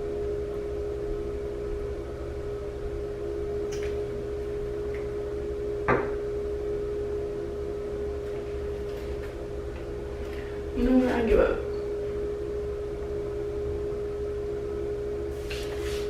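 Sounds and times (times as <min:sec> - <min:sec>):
mechanical hum with low drone: 0:00.0 - 0:16.0
short knock: 0:05.9 - 0:06.2.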